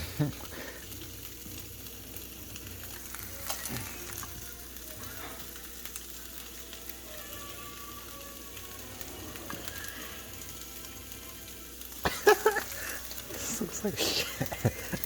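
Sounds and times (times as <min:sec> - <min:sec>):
oil crackling and popping: 0:00.0 - 0:15.0
rice sizzling in hot oil: 0:00.0 - 0:15.0.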